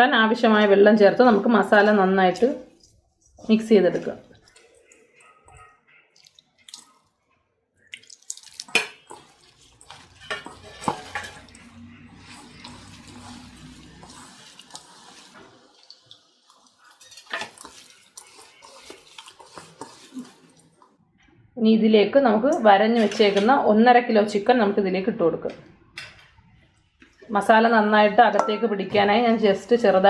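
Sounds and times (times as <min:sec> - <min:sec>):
water pouring into a bowl: 0:06.2 - 0:07.0, 0:07.8 - 0:20.8.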